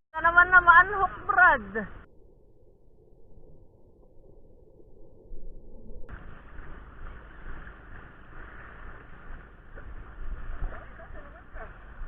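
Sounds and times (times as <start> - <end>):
surf on the shore: 6.1 - 12.0
wind buffeting microphone: 6.1 - 12.0.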